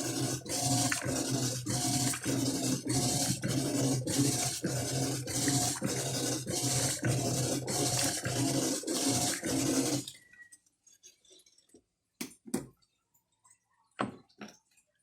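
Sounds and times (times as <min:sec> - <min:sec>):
washing machine motor humming: 0:00.0 - 0:10.1.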